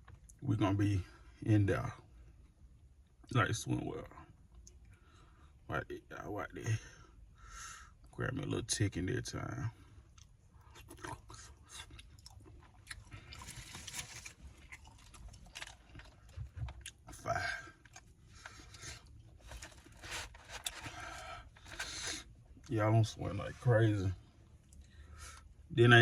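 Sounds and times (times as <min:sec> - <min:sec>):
person chewing food: 0:10.1 - 0:17.2, 0:17.8 - 0:19.7.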